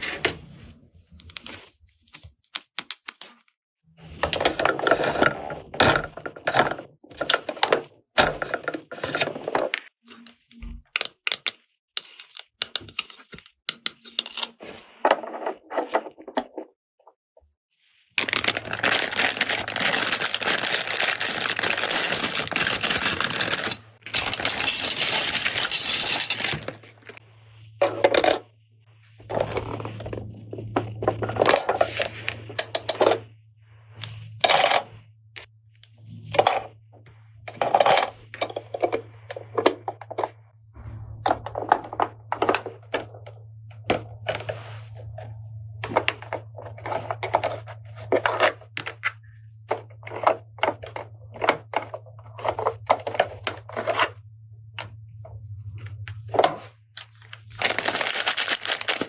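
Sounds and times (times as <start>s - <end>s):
steady low hum: 21.6s - 57.7s.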